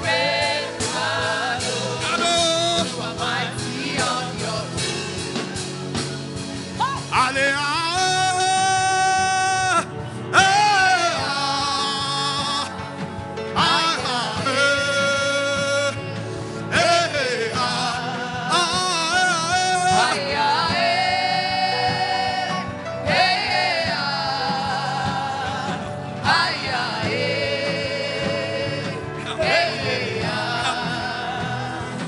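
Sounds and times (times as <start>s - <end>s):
instrumental accompaniment: 0.0s - 32.0s
person singing with vibrato: 13.6s - 32.0s.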